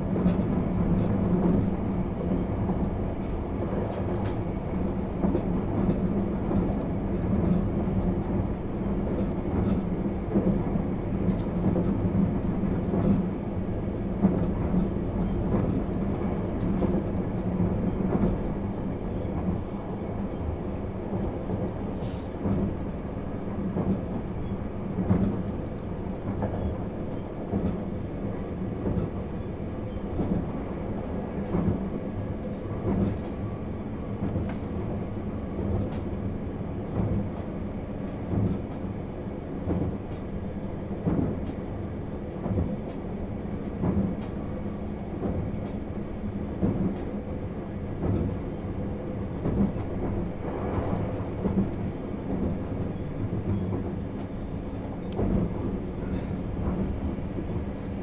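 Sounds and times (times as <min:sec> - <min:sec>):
train rumbling on rails: 0:00.0 - 0:58.0.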